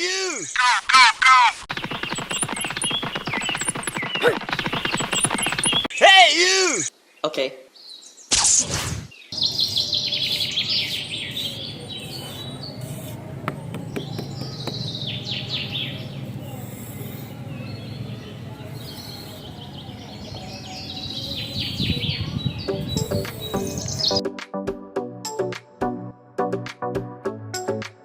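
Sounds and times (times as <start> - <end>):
small birds chirping: 1.7 - 8.4, 9.0 - 24.2
steady low hum: 11.1 - 20.6.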